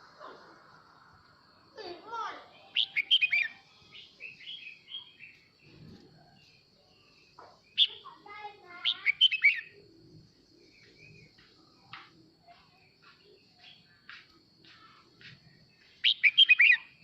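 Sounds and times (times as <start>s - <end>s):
faint steady high tone: 0.0s - 5.5s
bird chirping: 0.0s - 17.0s.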